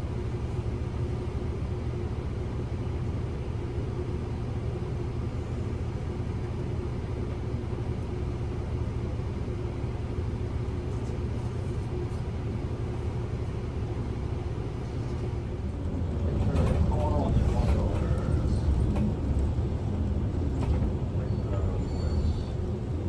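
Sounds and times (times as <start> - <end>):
bus engine and road rumble: 0.0 - 23.0
faint hum: 12.6 - 23.0.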